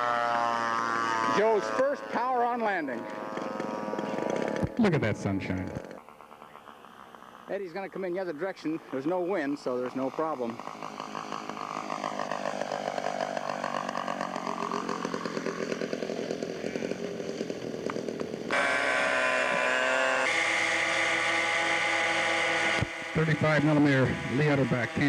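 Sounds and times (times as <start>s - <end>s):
model airplane engine buzzing: 0.0s - 25.0s.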